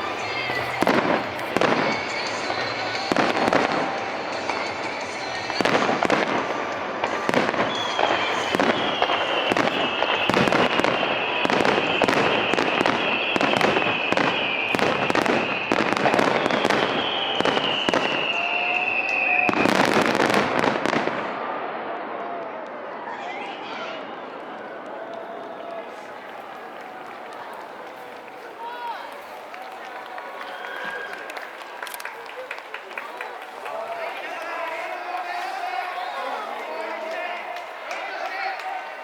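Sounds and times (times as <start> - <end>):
high falling firework whistle: 0.0 - 21.4
fireworks bangs: 0.0 - 39.0.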